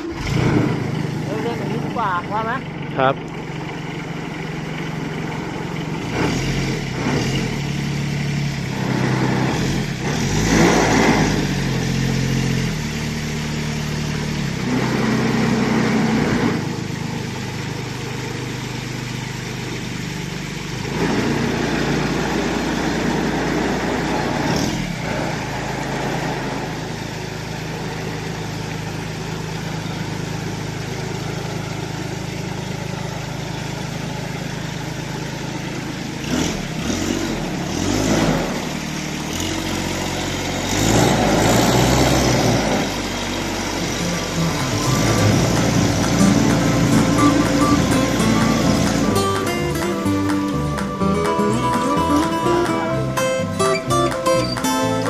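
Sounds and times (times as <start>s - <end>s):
diesel engine driving pump: 0.0s - 55.0s.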